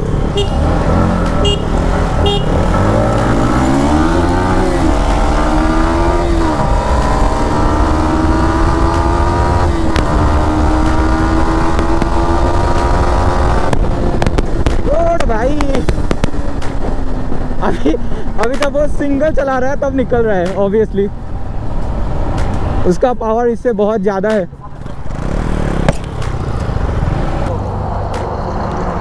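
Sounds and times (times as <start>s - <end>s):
motorcycle engine accelerating: 0.0s - 15.0s, 24.7s - 27.5s.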